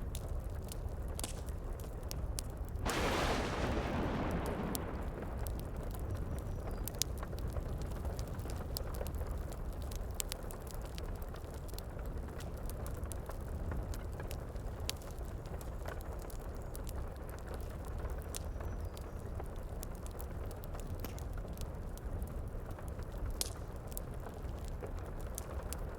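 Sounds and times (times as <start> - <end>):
wood fire crackling and popping: 0.0 - 25.9
heavy rain: 2.8 - 6.9.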